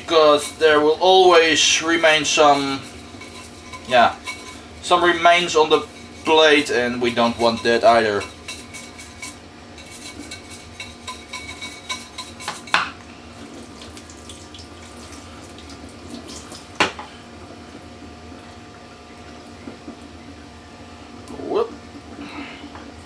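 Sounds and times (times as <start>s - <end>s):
water running from a tap: 13.4s - 16.8s.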